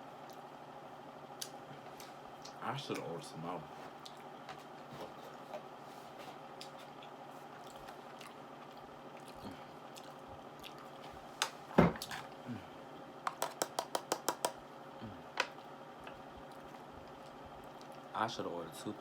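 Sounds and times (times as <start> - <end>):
chewing clicks: 7.6 - 11.0
person eating mouth sounds: 7.6 - 11.0.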